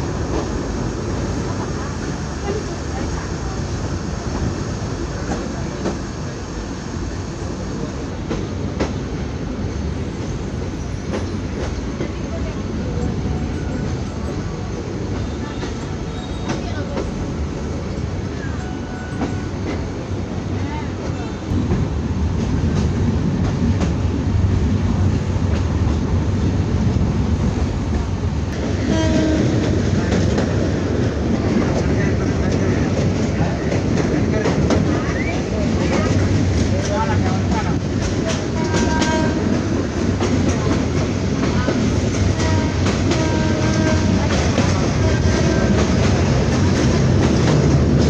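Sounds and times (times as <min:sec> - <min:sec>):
train rumbling: 0:00.0 - 0:48.0.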